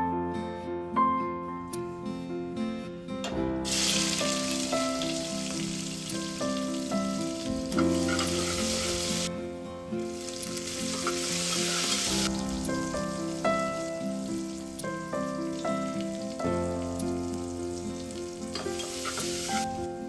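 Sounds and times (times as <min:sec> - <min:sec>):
soft plucked background music: 0:00.0 - 0:20.0
food sizzling in a pan: 0:03.6 - 0:09.3, 0:09.9 - 0:20.0.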